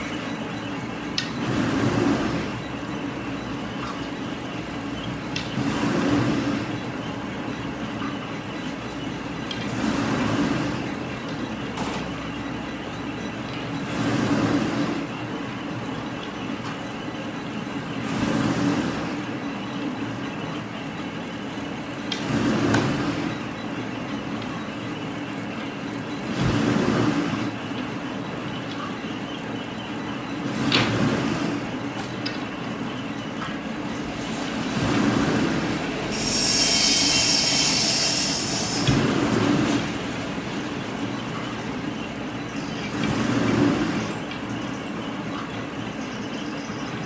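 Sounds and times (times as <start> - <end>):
continuous mechanical hum: 0.0 - 47.0
hiss-like rushing surge: 34.0 - 40.0.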